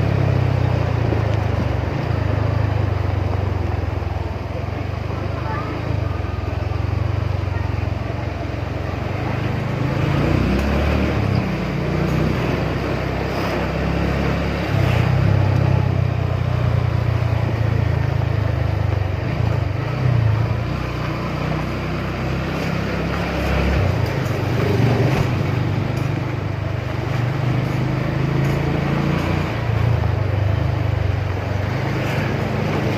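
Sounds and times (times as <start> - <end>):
motorcycle engine rumble: 0.0 - 32.9
road noise: 0.0 - 32.9.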